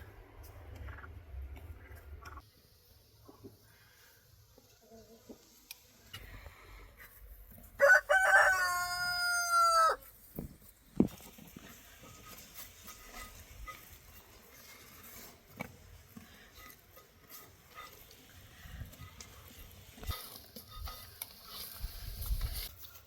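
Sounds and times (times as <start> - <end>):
rooster crowing: 7.8 - 10.0.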